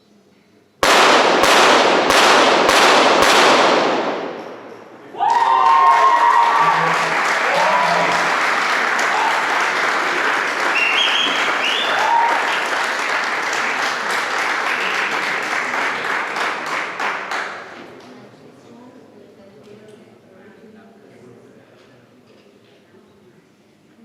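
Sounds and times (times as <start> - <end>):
spectators applauding and cheering: 5.0 - 17.8
people shouting: 5.1 - 8.4, 9.0 - 9.6, 11.7 - 12.5.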